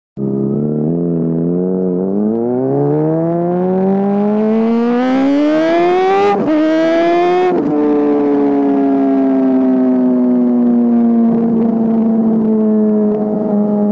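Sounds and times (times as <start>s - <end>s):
sport bike engine revving: 0.2s - 8.2s.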